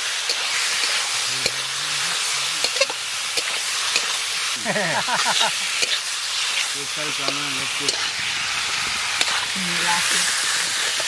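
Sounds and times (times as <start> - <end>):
chicken sizzling in hot oil: 0.0 - 11.0
metal spatula scraping pan: 0.3 - 4.2.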